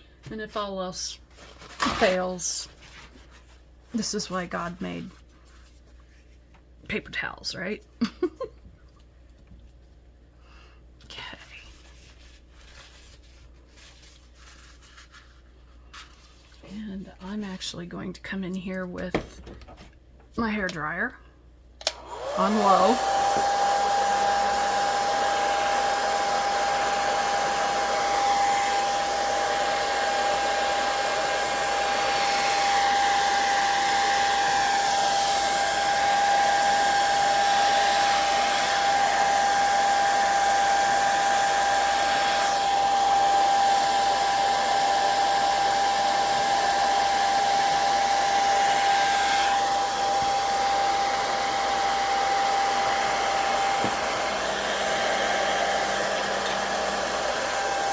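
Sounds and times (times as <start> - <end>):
hair dryer running: 4.0 - 5.0, 21.8 - 57.9.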